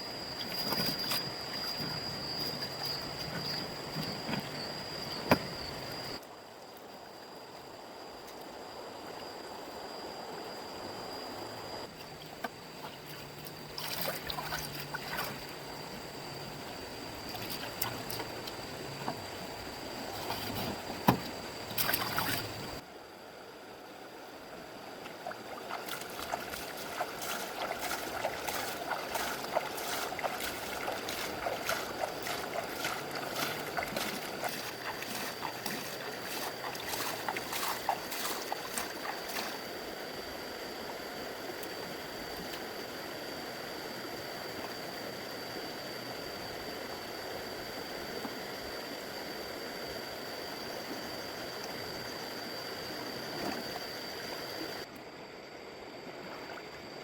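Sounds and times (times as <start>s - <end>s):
water trickling and splashing: 11.8s - 16.0s, 17.1s - 22.8s, 24.9s - 40.0s.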